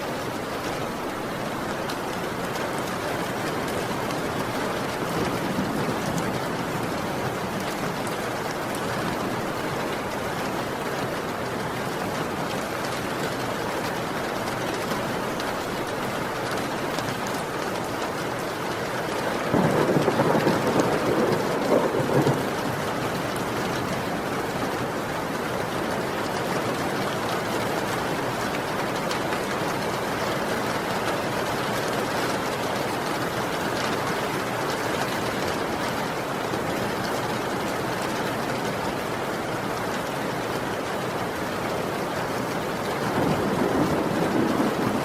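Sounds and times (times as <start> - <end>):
heavy rain: 0.0 - 45.0
thunder rolling: 19.5 - 22.9, 43.1 - 45.0.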